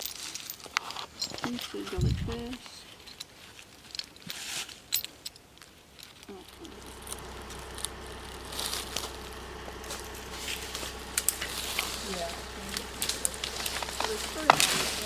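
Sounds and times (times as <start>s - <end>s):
steady low hum: 2.0s - 2.6s, 6.3s - 15.0s
dry leaves crunching underfoot: 6.3s - 15.0s.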